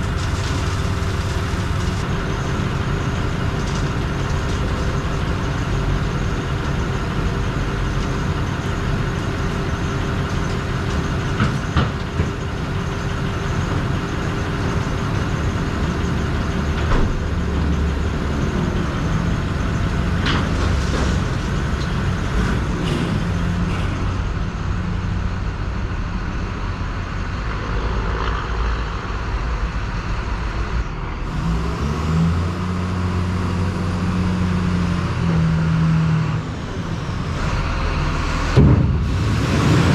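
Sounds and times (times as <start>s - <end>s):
heavy truck engine running: 0.0s - 39.9s.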